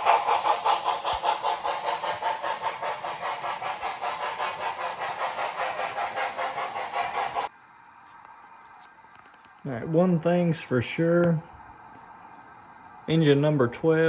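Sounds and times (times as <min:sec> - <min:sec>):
model locomotive steam chuffs: 0:00.0 - 0:07.5, 0:09.7 - 0:11.7, 0:12.3 - 0:14.0.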